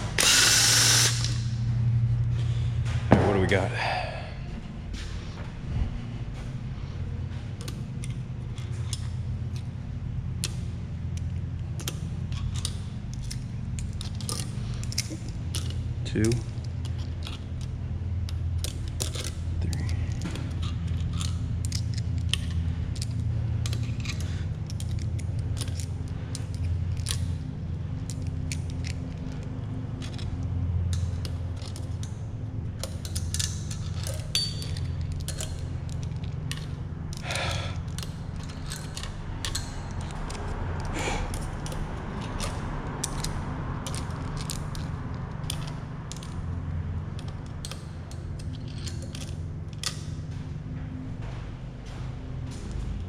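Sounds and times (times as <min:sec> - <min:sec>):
ratchet clicking: 0:00.0 - 0:01.6, 0:32.8 - 0:46.5, 0:47.2 - 0:50.1
steady low hum: 0:00.0 - 0:53.0
metal hardware clinking: 0:32.8 - 0:37.2, 0:37.9 - 0:46.5, 0:47.1 - 0:53.0.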